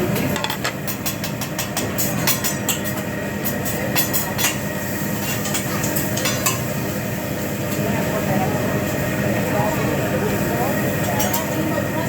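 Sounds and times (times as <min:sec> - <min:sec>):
cooking hiss: 0:00.1 - 0:12.0
metal spatulas clinking on griddle: 0:00.2 - 0:06.8, 0:11.0 - 0:11.6.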